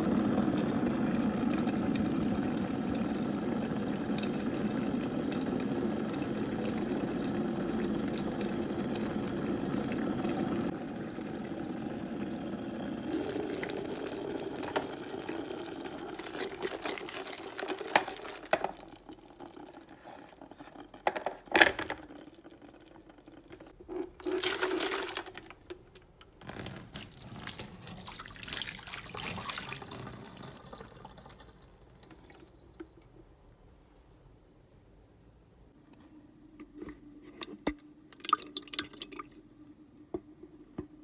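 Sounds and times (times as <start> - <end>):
water splashing in a sink: 0.0 - 21.0, 22.0 - 25.8, 26.4 - 32.0, 38.1 - 40.1.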